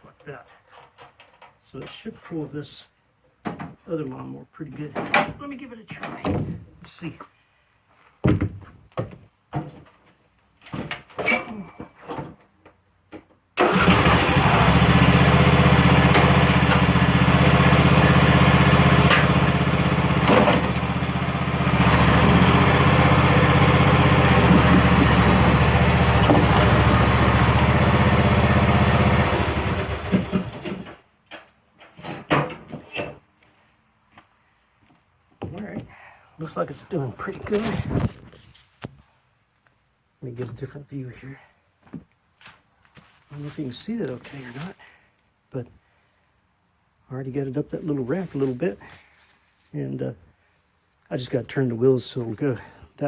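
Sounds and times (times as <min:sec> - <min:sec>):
riding lawn mower engine: 0:13.6 - 0:31.0.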